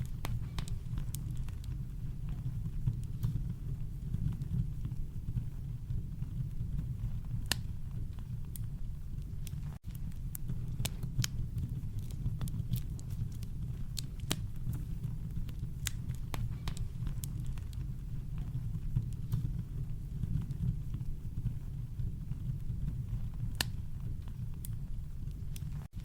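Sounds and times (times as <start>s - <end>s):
campfire wood crackling: 0.0s - 26.0s.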